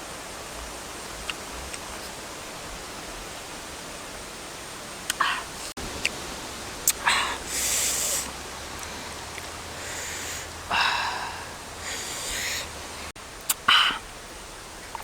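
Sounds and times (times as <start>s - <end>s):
person breathing and sniffing: 7.0s - 9.2s, 9.8s - 13.1s.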